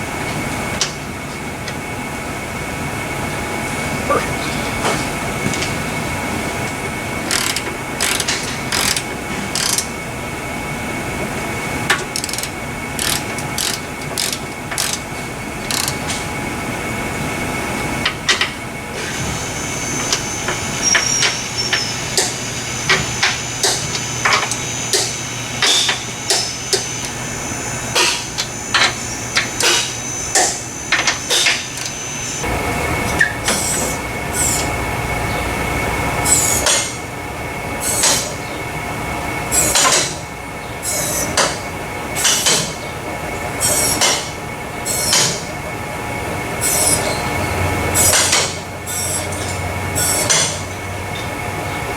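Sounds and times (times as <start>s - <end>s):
steady shop hum: 0.0s - 51.9s
wrenches clicking and clinking: 7.3s - 9.9s, 12.1s - 15.0s.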